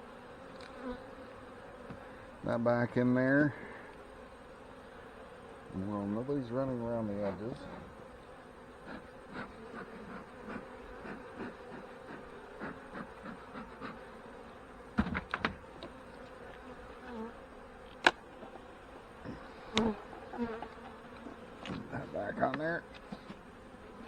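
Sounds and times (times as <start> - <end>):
honey bees buzzing: 0.0 - 24.0
knocks: 15.0 - 15.6.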